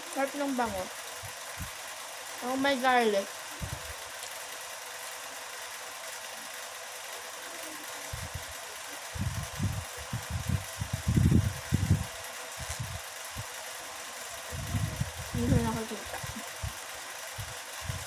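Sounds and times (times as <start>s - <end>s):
steady background hiss: 0.0s - 17.8s.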